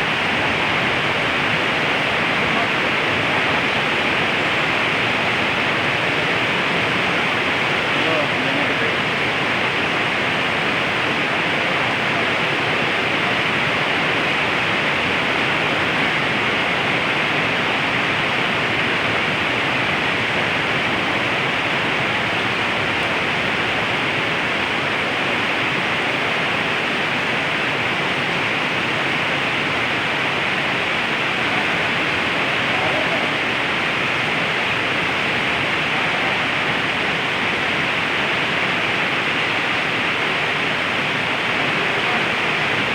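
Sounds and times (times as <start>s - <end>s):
heavy rain pouring: 0.0s - 42.9s.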